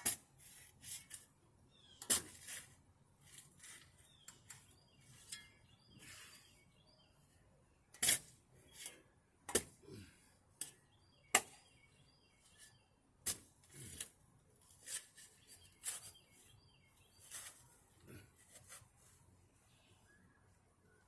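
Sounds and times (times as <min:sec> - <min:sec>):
shovel scraping dirt: 0:00.0 - 0:01.3, 0:02.0 - 0:06.5, 0:07.9 - 0:09.8, 0:13.2 - 0:16.3, 0:17.1 - 0:18.9.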